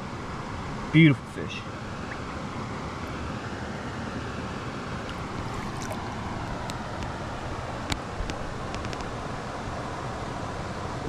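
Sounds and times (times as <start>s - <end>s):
creek water running: 4.8s - 9.1s.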